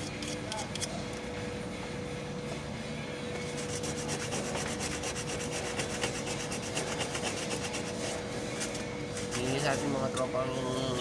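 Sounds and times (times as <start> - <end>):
steady hum: 0.0 - 11.0
rhythmic scraping strokes: 3.4 - 11.0.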